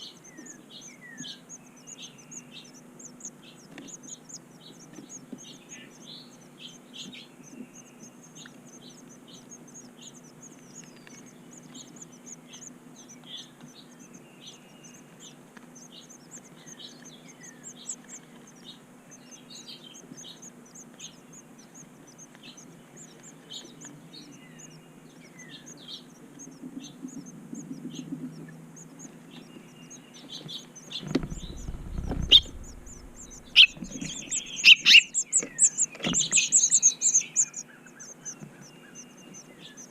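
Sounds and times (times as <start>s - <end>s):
faint low hum: 0.0s - 39.9s
small birds chirping: 0.0s - 39.9s
sharp knocks: 31.1s - 34.2s
low rumble: 31.1s - 34.6s.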